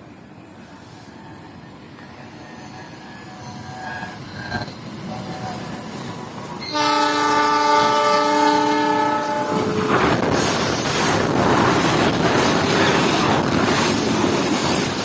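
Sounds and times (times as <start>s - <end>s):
train approaching rumble: 0.0s - 15.0s
locomotive horn blast: 6.6s - 10.1s.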